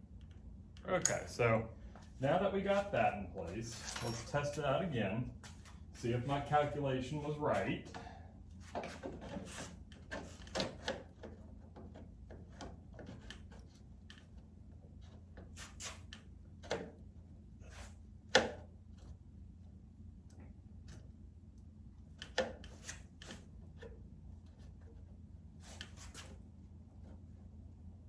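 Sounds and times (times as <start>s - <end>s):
rubbing and scraping on plastic cowl: 8.6s - 10.9s.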